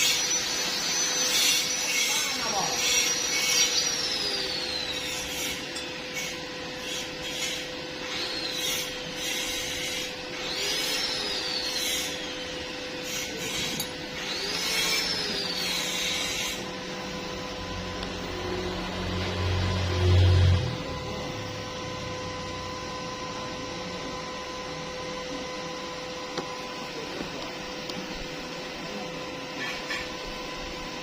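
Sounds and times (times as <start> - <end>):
tool rasping metal: 0.0 - 16.7
rising and falling whine: 2.8 - 6.8, 10.0 - 29.1.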